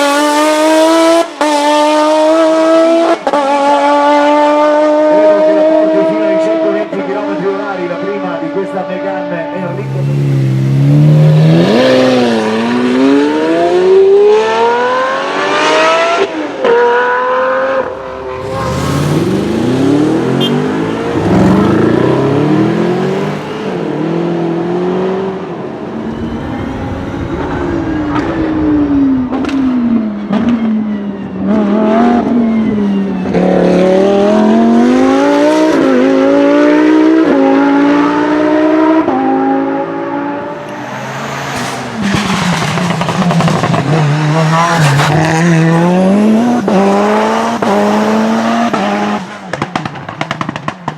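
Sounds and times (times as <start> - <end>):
race car engine accelerating: 0.0 - 8.5, 9.2 - 26.2, 27.2 - 50.9
sports car engine accelerating: 9.2 - 25.7, 27.5 - 50.9.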